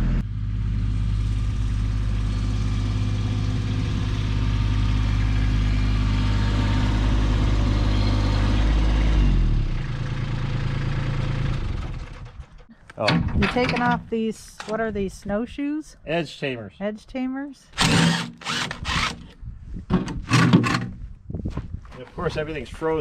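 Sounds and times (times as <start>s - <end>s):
tractor diesel engine running: 0.0s - 14.7s, 17.8s - 19.4s.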